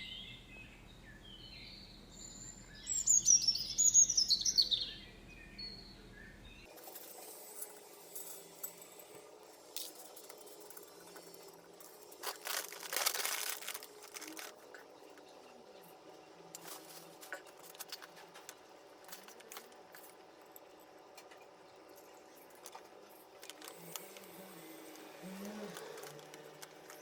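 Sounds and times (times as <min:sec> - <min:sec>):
crinkling and rustling: 0:06.7 - 0:27.0.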